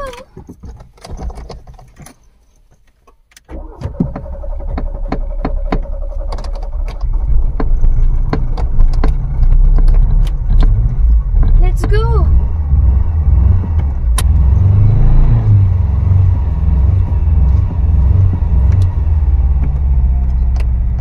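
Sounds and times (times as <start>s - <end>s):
starter motor cranking: 3.5s - 11.6s
car engine running: 3.6s - 21.0s.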